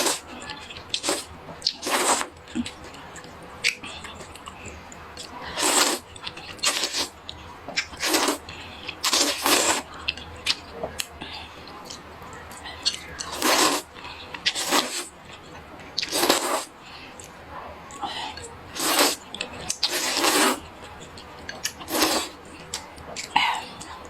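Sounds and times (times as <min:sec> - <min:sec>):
noodles being slurped: 0:00.0 - 0:00.2, 0:00.9 - 0:02.7, 0:05.5 - 0:07.2, 0:07.8 - 0:09.9, 0:12.9 - 0:15.1, 0:16.0 - 0:16.7, 0:18.7 - 0:20.7, 0:21.6 - 0:22.4
quiet chewing: 0:00.0 - 0:24.0.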